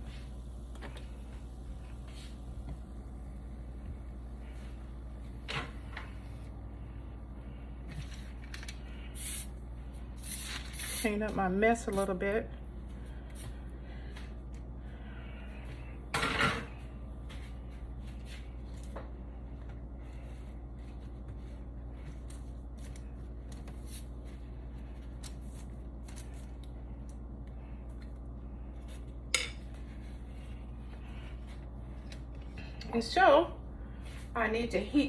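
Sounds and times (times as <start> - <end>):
steady low hum: 0.0 - 35.0
dishes and utensils clattering: 16.1 - 16.8.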